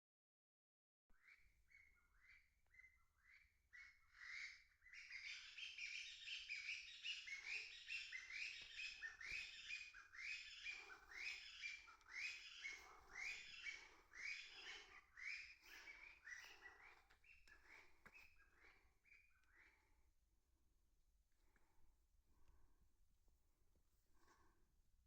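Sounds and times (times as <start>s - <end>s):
wild birds calling: 5.1s - 18.3s.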